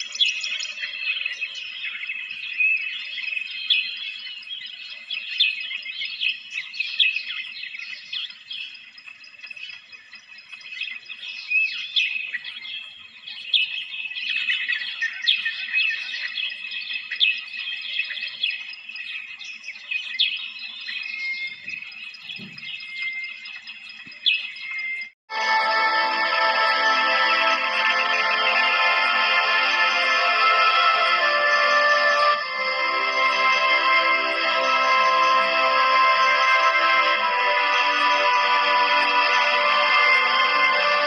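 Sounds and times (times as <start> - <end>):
small birds chirping: 0.0 - 25.2.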